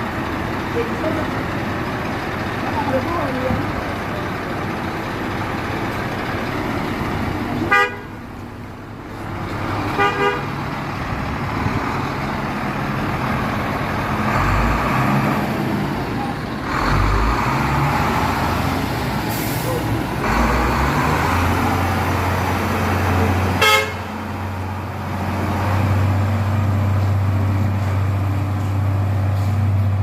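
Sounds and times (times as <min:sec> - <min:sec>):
truck engine running: 0:00.0 - 0:30.0
truck horn tooting: 0:07.7 - 0:08.2, 0:10.0 - 0:10.6, 0:23.5 - 0:24.2.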